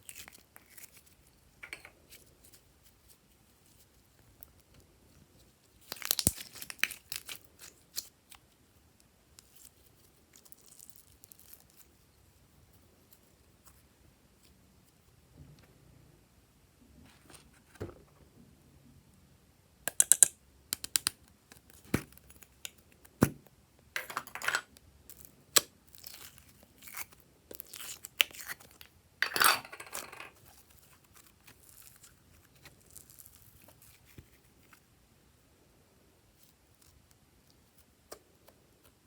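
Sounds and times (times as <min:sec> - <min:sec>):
slime popping and crackling: 0:05.8 - 0:08.0.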